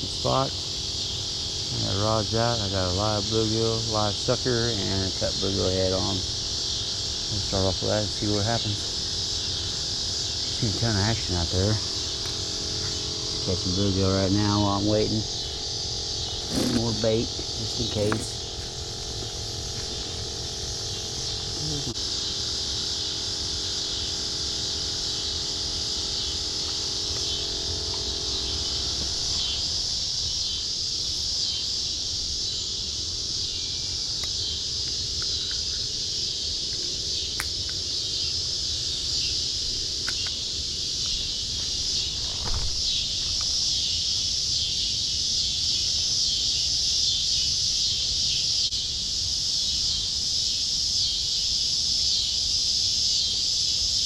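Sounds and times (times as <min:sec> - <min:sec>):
faint low drone: 0:00.0 - 0:31.3
shrill insect chorus: 0:00.0 - 0:54.0.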